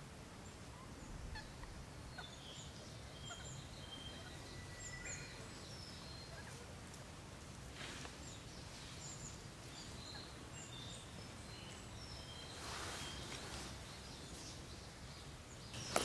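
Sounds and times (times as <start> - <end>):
birds chirping: 0.8 - 6.8, 7.8 - 16.0
brief rustle: 12.6 - 13.8, 15.8 - 16.0.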